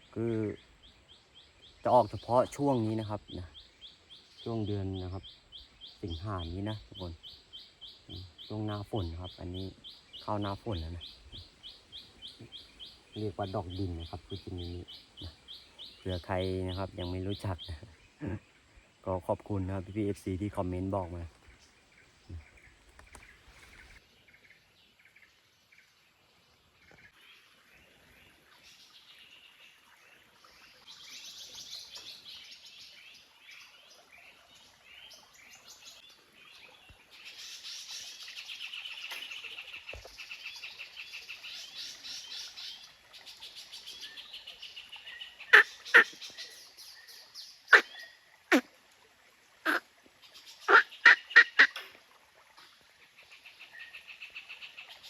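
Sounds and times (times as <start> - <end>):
birds chattering: 1.7 - 24.0, 45.4 - 46.6, 47.7 - 48.6, 50.6 - 51.8
short sharp bird calls: 47.7 - 48.7, 49.6 - 49.8, 50.7 - 51.9.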